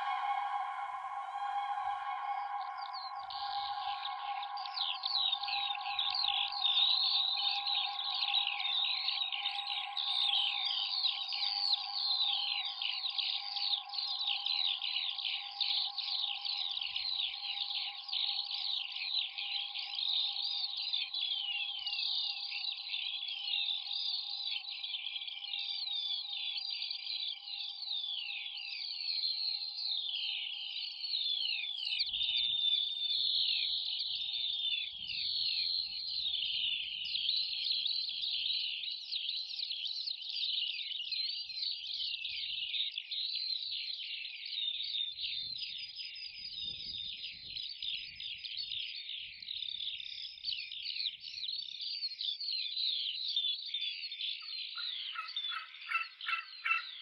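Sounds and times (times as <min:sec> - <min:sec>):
electronic drone: 0:00.0 - 0:08.0
songbirds chirping: 0:00.0 - 0:57.0.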